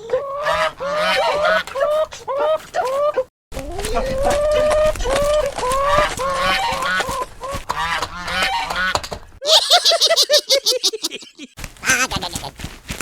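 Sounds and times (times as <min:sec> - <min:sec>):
goose-like honking calls: 0:03.9 - 0:09.0.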